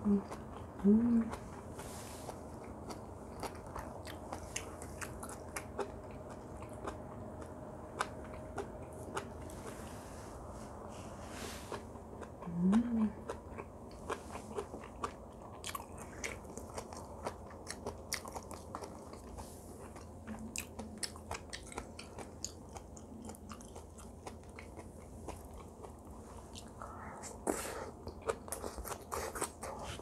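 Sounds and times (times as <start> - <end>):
closed-mouth hum: 0.0 - 30.0
wet chewing: 0.2 - 10.0, 11.7 - 30.0.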